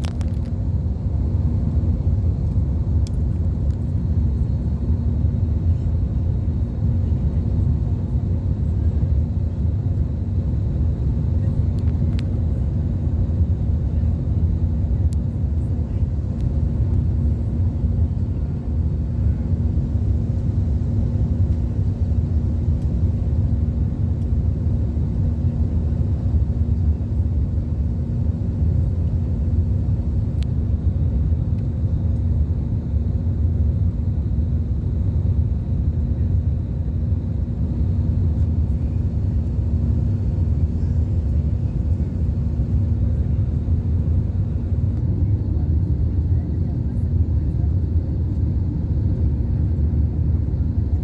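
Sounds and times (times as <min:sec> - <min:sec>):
airliner cabin engine rumble: 0:00.0 - 0:51.0
steady hum: 0:28.6 - 0:45.7.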